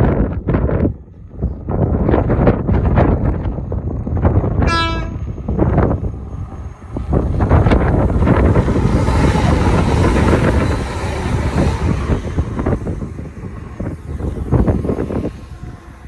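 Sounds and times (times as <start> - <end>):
train passing at speed: 0.0 - 16.0.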